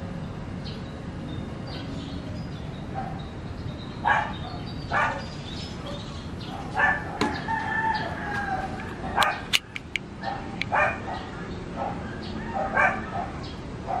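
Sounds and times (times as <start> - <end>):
dog barking: 4.0 - 7.4, 9.1 - 9.6, 10.2 - 14.0.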